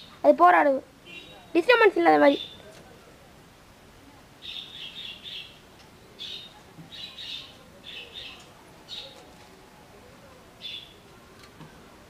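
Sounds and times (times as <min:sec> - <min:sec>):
small birds chirping: 0:01.0 - 0:02.8, 0:04.4 - 0:09.4, 0:10.6 - 0:11.1.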